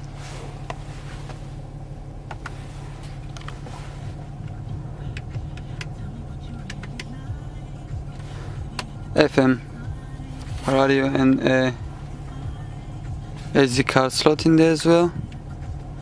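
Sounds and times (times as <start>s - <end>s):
diesel engine idling: 0.0s - 16.0s
dashboard button clicks: 2.2s - 2.6s, 4.4s - 7.3s.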